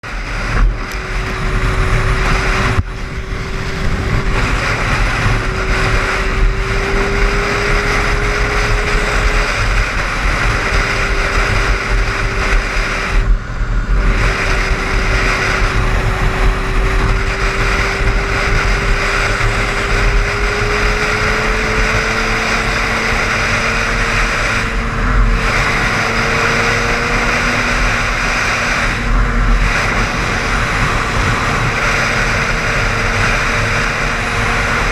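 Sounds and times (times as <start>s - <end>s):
car engine hum: 0.0s - 34.9s
road and tyre noise: 0.0s - 34.9s.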